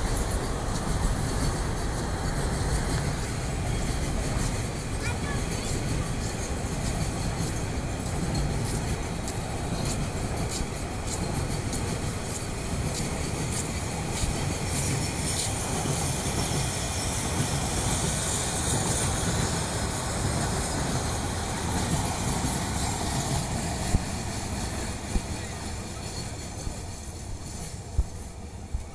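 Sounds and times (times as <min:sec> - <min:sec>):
train rumbling and rattling: 0:00.0 - 0:28.9.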